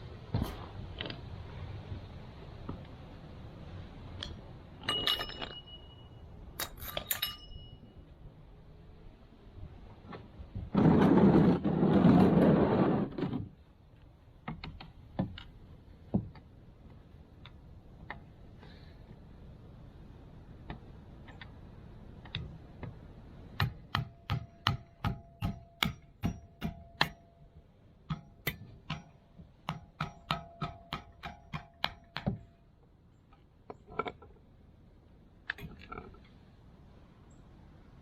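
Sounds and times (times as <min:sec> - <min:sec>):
faint metallic ringing: 0:04.2 - 0:08.3, 0:24.0 - 0:32.8.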